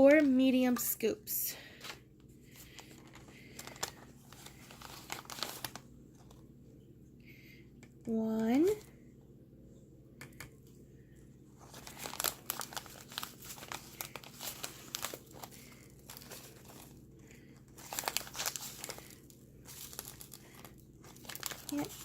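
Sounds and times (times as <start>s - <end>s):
plastic packet crinkling: 1.8s - 6.4s, 11.6s - 22.0s.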